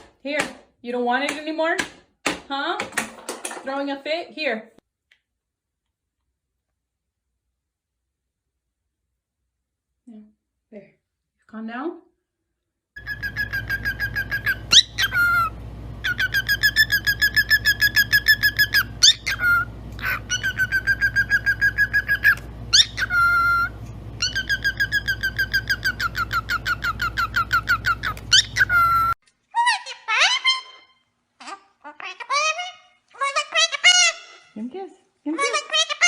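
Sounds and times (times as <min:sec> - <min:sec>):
parrot rising and falling whistle: 0:13.0 - 0:29.2.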